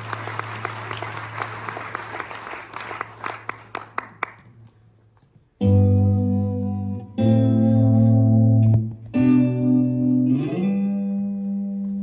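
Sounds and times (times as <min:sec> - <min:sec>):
audience applause: 0:00.0 - 0:04.5
low amplifier hum: 0:05.5 - 0:12.0
electric guitar chord: 0:05.6 - 0:12.0.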